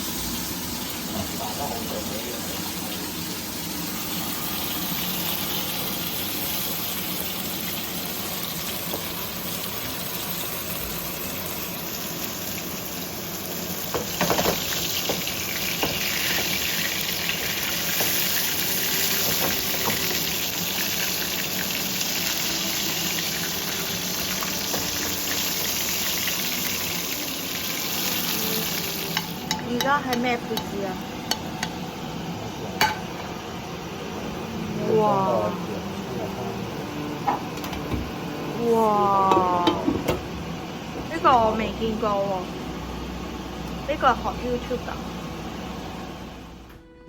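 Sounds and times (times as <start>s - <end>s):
food sizzling in hot oil: 0.0s - 35.6s.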